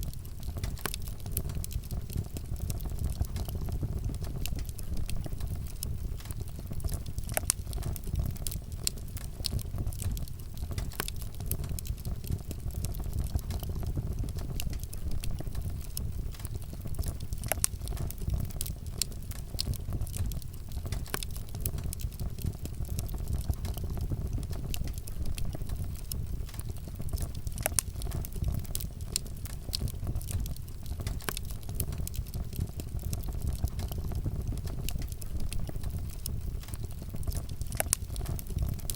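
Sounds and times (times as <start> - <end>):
campfire crackling and popping: 0.0 - 38.9
low rumble of flame: 0.0 - 38.9.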